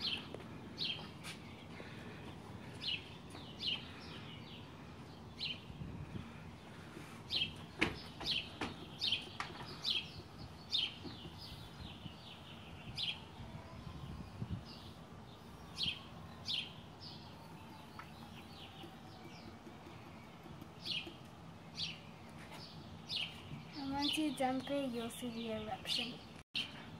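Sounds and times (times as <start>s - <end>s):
small bird chirping: 7.3s - 26.8s.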